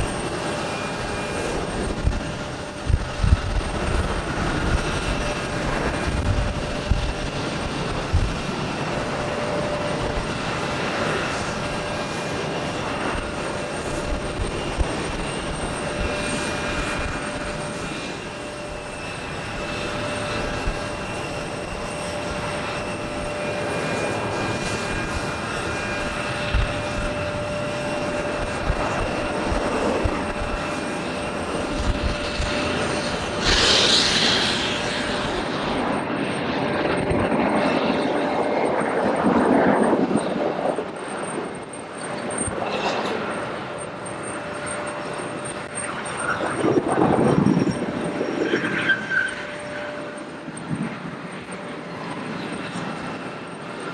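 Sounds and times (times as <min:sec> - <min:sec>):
jet engines rumbling and whining: 0:00.0 - 0:53.9.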